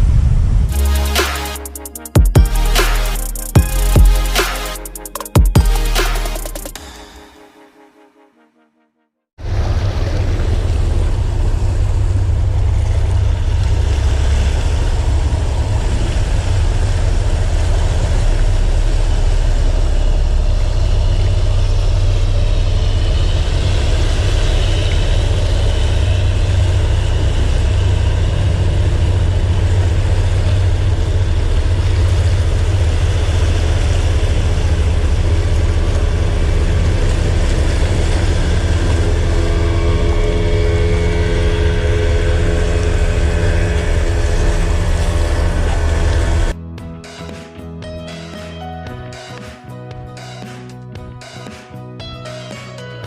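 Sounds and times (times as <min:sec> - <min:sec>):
motorboat engine droning: 0:09.4 - 0:46.6.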